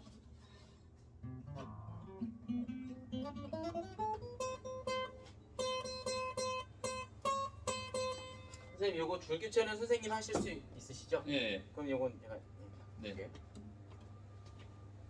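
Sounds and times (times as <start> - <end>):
acoustic guitar picked notes: 0.0 - 8.8.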